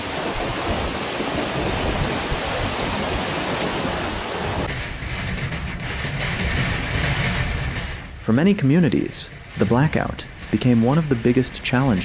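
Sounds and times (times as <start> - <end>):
driving rain or surf: 0.0 - 12.0
wind: 0.0 - 12.0.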